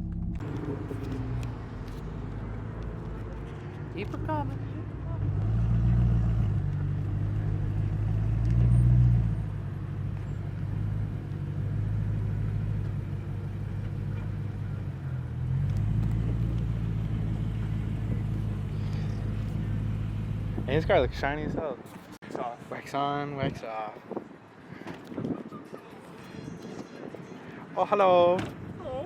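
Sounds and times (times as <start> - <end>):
car engine running: 0.0 - 21.6.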